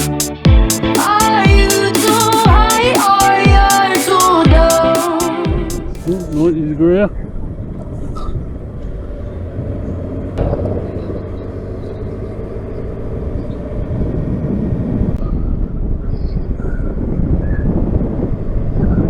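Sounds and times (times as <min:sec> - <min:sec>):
wind noise: 0:13.9 - 0:19.0.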